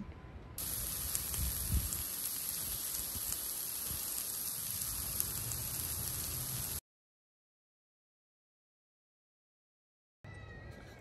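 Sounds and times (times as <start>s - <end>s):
food sizzling in a skillet: 0.6s - 6.8s.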